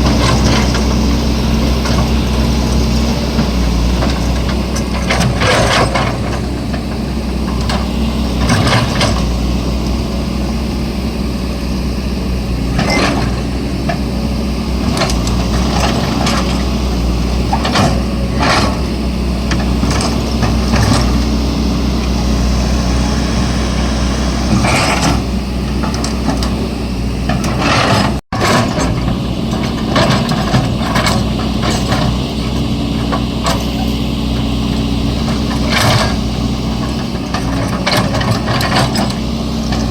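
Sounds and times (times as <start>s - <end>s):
excavator diesel engine: 0.0s - 39.9s
metallic clanks and scrapes: 24.5s - 26.6s.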